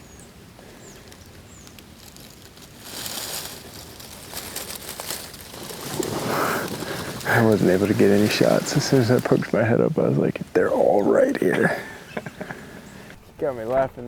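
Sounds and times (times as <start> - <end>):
ducks wings flapping: 3.6 - 13.4.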